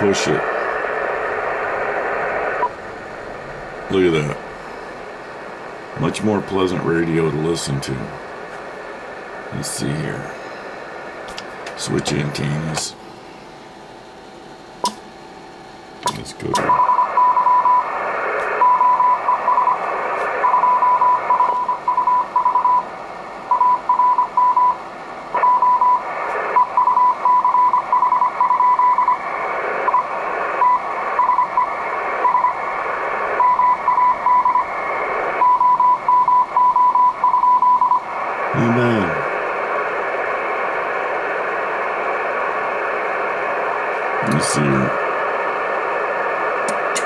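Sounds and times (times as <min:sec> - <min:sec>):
radio band hiss: 0:00.0 - 0:47.0
morse code beeps: 0:16.7 - 0:17.9, 0:18.6 - 0:19.8, 0:20.4 - 0:22.9, 0:23.5 - 0:24.8, 0:25.4 - 0:26.0, 0:26.6 - 0:29.2, 0:29.9 - 0:32.6, 0:33.4 - 0:34.7, 0:35.4 - 0:38.1.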